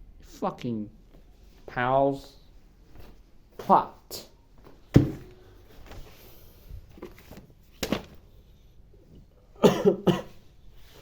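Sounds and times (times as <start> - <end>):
person coughing: 9.6 - 10.4.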